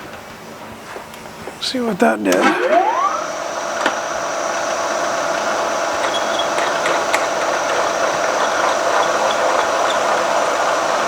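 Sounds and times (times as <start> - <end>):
milling machine whining: 1.6 - 11.0.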